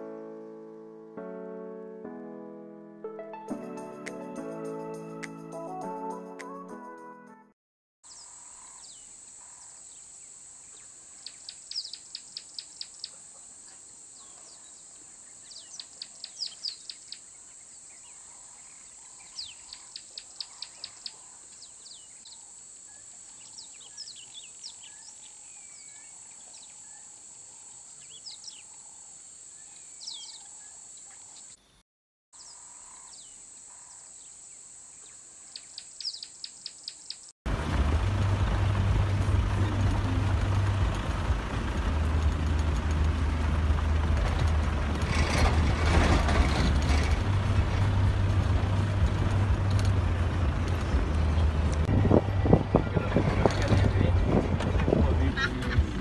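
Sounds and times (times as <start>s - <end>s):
bird chirping: 8.1s - 31.8s, 32.4s - 37.3s.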